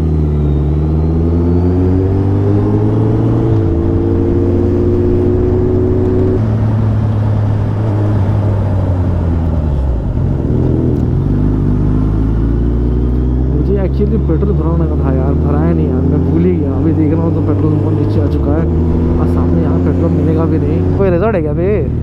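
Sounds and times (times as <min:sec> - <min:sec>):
motorcycle engine running: 0:00.0 - 0:22.0
wind rush: 0:01.9 - 0:11.9.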